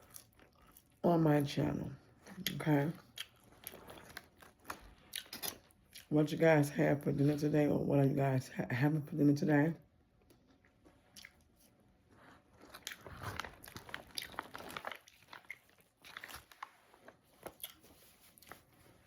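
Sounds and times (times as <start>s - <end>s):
person chewing food: 0.0s - 1.0s, 2.1s - 6.1s, 10.2s - 19.0s
crunches and wet mouth clicks: 11.1s - 11.5s.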